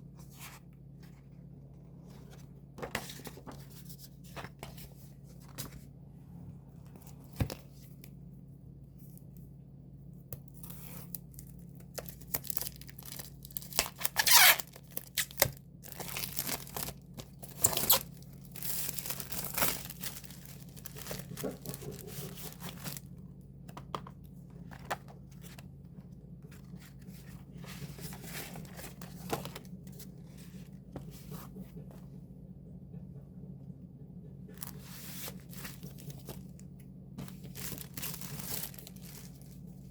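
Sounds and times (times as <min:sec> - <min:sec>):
plastic wrapping tearing and crinkling: 0:10.6 - 0:23.0, 0:37.3 - 0:39.6.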